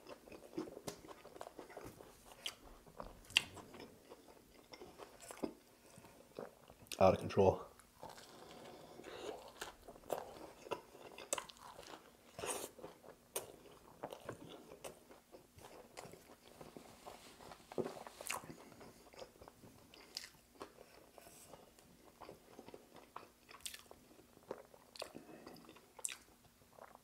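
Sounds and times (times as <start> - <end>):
crunchy chewing: 8.0 - 27.0.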